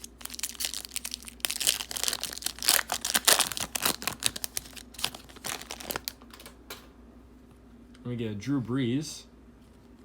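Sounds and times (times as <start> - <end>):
card pack wrapper tearing: 0.0 - 6.2.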